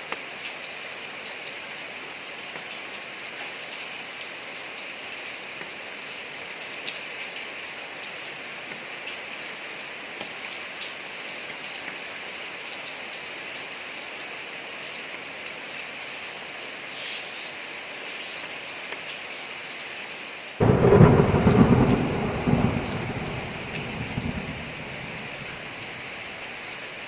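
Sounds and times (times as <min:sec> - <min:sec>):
steady rain on a street: 0:00.0 - 0:27.0
loud thunderclap rumbling: 0:20.6 - 0:26.4.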